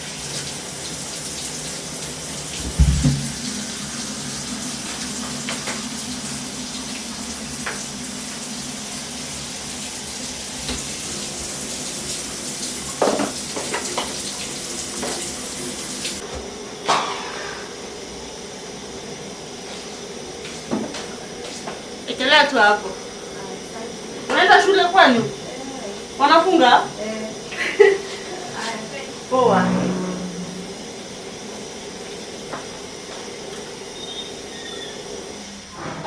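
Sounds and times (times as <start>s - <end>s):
tap water running into sink: 0.0s - 16.3s.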